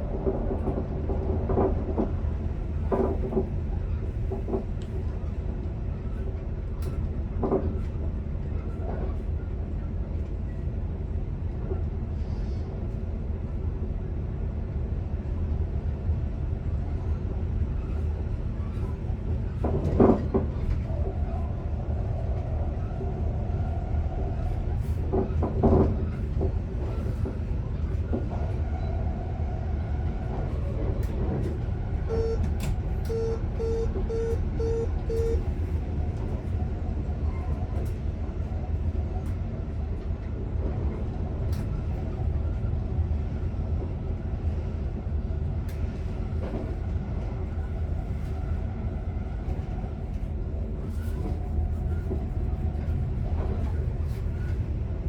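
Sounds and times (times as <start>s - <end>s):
train low rumble: 0.0s - 55.0s
short electronic beeps: 32.1s - 32.5s, 33.1s - 35.5s
train knocks: 32.1s - 35.4s.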